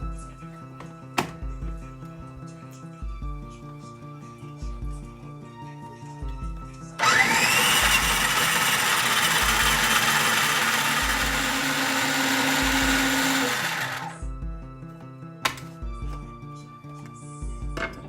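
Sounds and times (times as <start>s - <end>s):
background music: 0.0s - 18.0s
blender motor whining: 7.0s - 14.2s.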